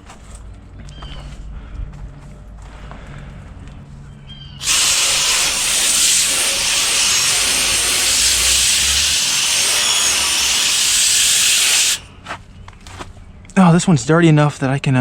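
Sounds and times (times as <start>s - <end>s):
hose spraying water: 4.6s - 12.1s.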